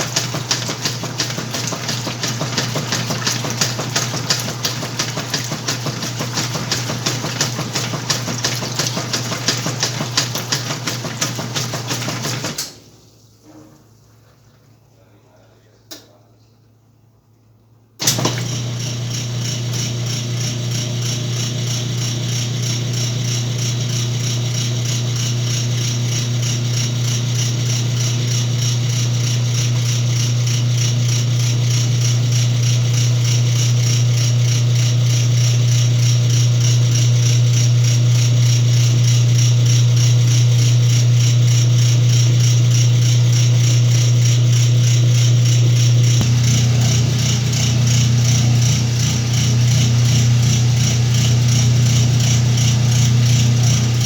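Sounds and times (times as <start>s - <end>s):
washing machine motor hum: 0.0s - 15.0s, 18.0s - 54.0s.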